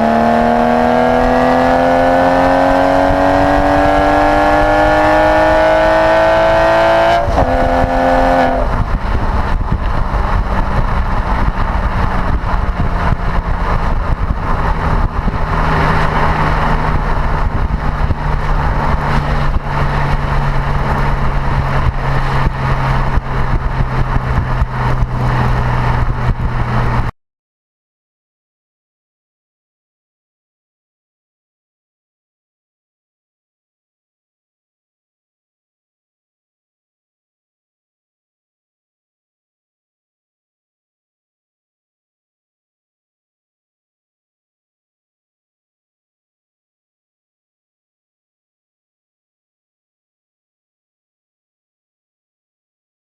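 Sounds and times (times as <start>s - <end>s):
sports car engine accelerating: 0.0s - 27.1s
gear change: 4.4s - 27.1s.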